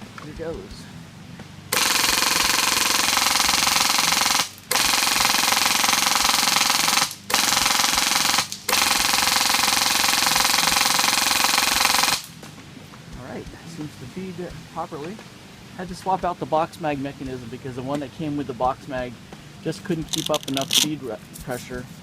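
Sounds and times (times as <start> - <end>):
airsoft machine gun firing full-auto: 1.7 - 12.3.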